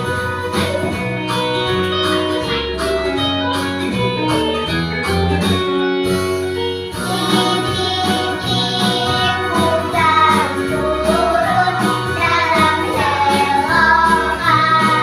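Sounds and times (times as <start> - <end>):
bass line: 0.0 - 15.0
plucked guitar: 0.0 - 15.0
person singing: 7.0 - 15.0.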